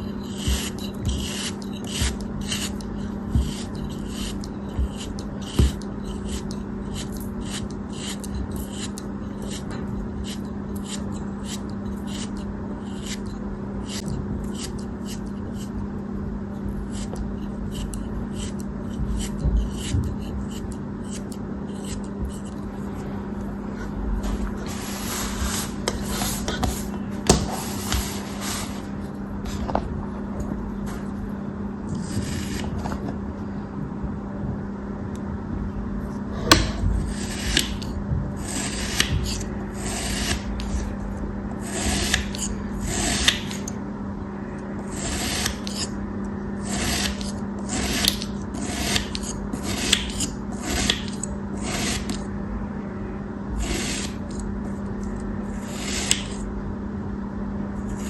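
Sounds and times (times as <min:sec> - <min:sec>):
knife cutting rasps: 0:00.0 - 0:15.8, 0:16.7 - 0:22.6, 0:32.0 - 0:32.8, 0:36.5 - 0:40.9, 0:41.6 - 0:43.8, 0:44.8 - 0:46.0, 0:46.6 - 0:52.3, 0:53.6 - 0:54.4, 0:55.5 - 0:56.4
steady low hum: 0:00.0 - 0:58.0.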